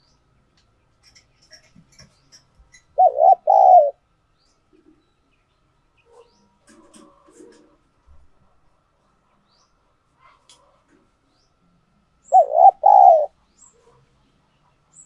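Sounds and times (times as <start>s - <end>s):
dove cooing: 3.0s - 4.0s, 12.3s - 13.4s.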